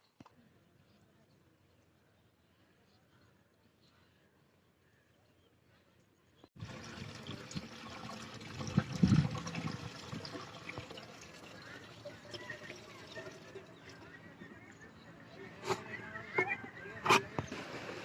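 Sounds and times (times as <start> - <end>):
water pouring and splashing: 6.6 - 14.0, 17.1 - 18.0.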